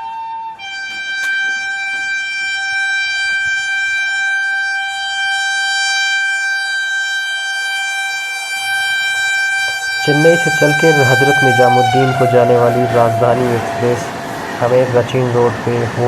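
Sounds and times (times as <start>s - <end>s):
locomotive horn blast: 8.0s - 16.0s.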